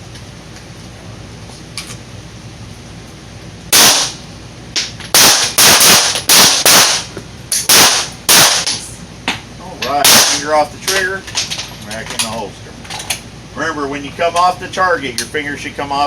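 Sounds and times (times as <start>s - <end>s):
pistol shots: 3.7s - 4.2s, 5.1s - 8.8s, 10.0s - 10.5s.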